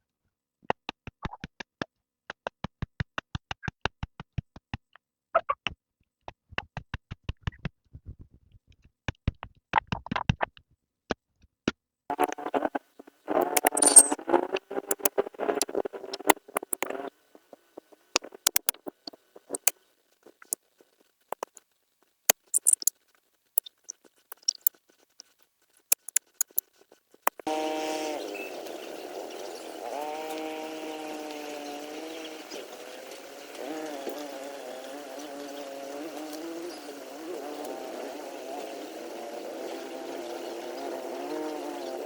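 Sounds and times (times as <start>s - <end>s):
scratchy wavering pitched sound: 12.1s - 19.7s, 22.4s - 22.9s
sharp clicks and taps: 13.3s - 17.1s, 18.1s - 19.7s, 20.3s - 20.6s, 21.3s - 21.6s, 22.3s - 22.9s, 23.6s - 25.3s, 25.9s - 27.5s.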